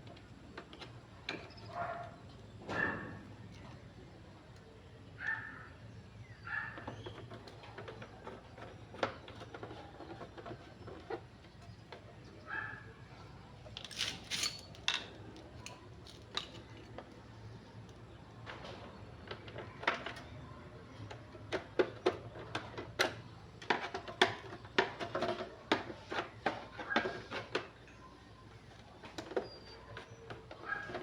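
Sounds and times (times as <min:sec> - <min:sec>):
clicks of small hard objects: 0:13.7 - 0:20.4.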